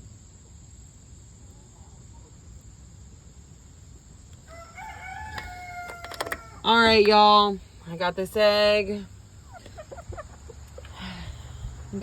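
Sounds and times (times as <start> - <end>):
low steady background rumble: 0.0 - 12.0
rooster crowing: 4.5 - 6.7.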